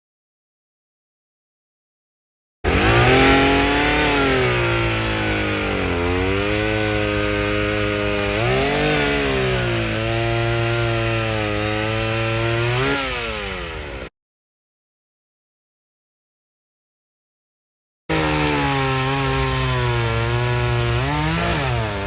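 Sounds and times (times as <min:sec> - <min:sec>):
chainsaw cutting wood: 0:02.7 - 0:14.1, 0:18.1 - 0:22.0.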